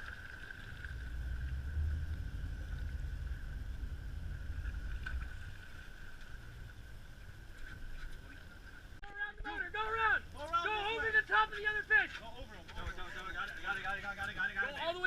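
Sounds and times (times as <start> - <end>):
boat engine rumbling: 0.0 - 11.5
steady high whine: 0.0 - 12.6.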